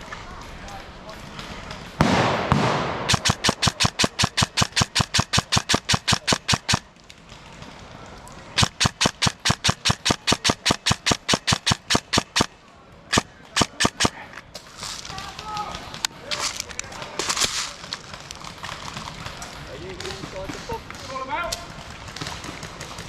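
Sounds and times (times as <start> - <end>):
airsoft gun firing: 2.0 - 6.9, 8.6 - 14.3.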